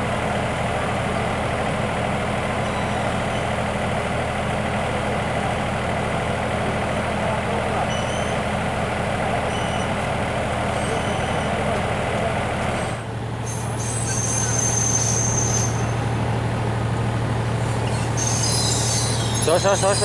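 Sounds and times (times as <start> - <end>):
train engine hum and rumble: 0.0 - 20.0
wheels squealing on rails: 2.5 - 3.7, 7.7 - 8.6, 9.3 - 12.0, 12.6 - 16.5, 17.5 - 20.0.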